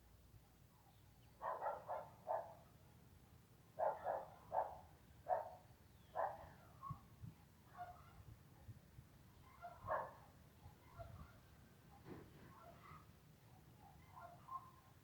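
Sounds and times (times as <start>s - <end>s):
dog barking: 1.4s - 2.7s, 3.8s - 7.0s, 7.7s - 8.3s, 9.4s - 15.0s.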